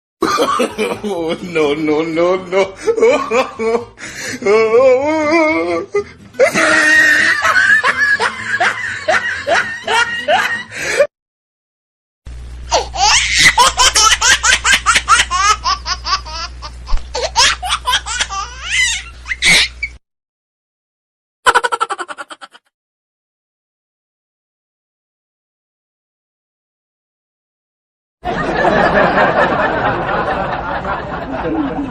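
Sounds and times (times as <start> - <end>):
hearty human laughter: 0.2 - 11.1, 28.3 - 31.9
high-pitched laughing bursts: 6.4 - 11.0, 12.7 - 20.0, 21.5 - 22.7
low hum: 12.3 - 12.9.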